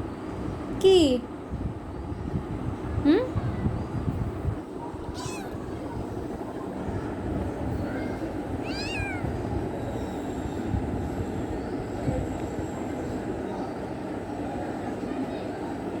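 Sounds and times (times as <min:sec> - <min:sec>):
kitten meowing: 0:05.1 - 0:05.7, 0:08.6 - 0:09.3.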